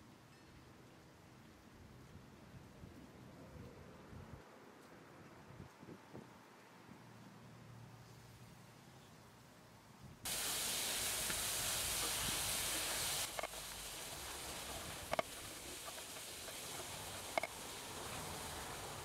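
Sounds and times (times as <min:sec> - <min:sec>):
paste sizzling in a skillet: 0:10.3 - 0:19.0.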